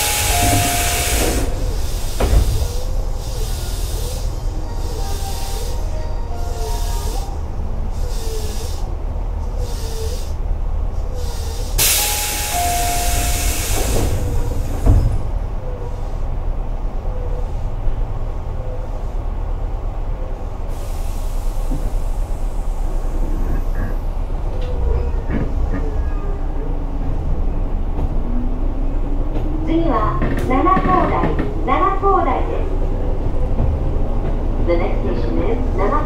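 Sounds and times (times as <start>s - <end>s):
loud hiss of air: 0.0s - 5.9s, 11.2s - 14.9s, 20.7s - 23.3s
train wheels rumbling on rail: 0.0s - 36.0s.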